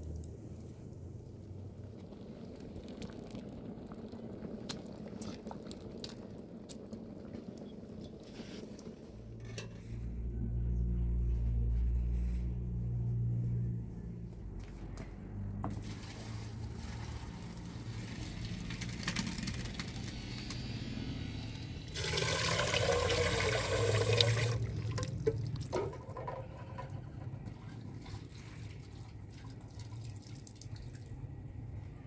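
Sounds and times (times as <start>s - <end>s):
water pouring and splashing: 15.5s - 31.6s.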